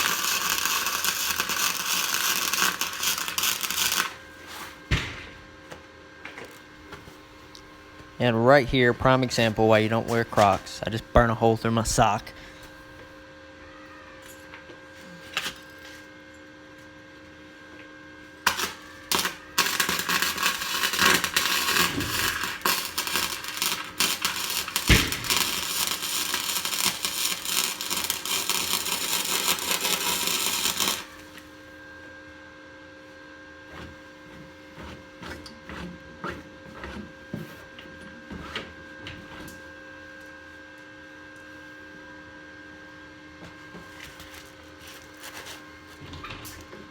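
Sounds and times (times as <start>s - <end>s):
welder arc crackling: 0.0s - 4.2s, 18.4s - 31.4s
steady hum: 0.0s - 13.6s, 17.5s - 34.2s.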